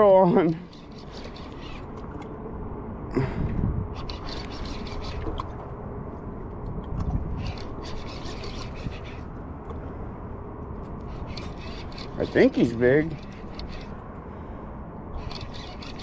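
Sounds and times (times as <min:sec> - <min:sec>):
fishing reel ratchet clicking: 0:00.7 - 0:01.9, 0:11.0 - 0:13.9, 0:15.2 - 0:16.0.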